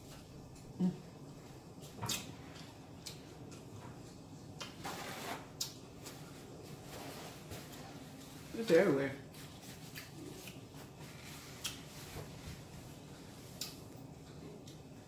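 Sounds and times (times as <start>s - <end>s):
person chewing corn: 11.3s - 11.8s.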